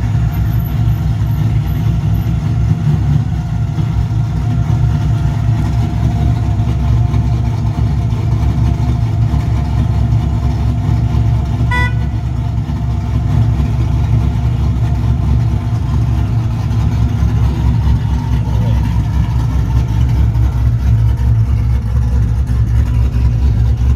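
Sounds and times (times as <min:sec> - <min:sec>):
car engine idling with choppy lope: 0:00.0 - 0:23.9
short beep: 0:11.7 - 0:12.1.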